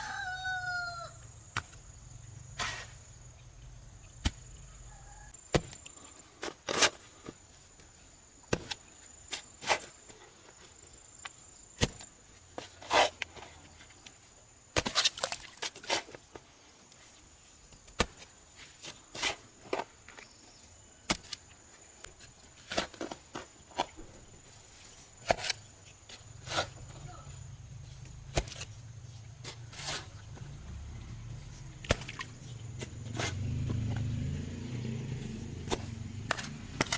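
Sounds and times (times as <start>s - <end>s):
sharp knocks and thuds: 5.5s - 5.8s, 28.3s - 28.8s, 29.4s - 34.2s.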